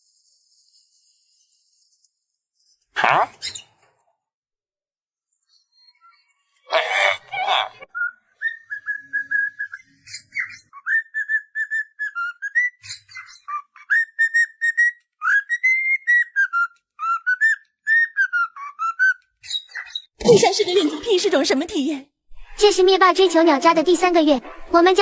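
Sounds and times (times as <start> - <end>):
parrot whistling a tune: 7.9 - 19.8.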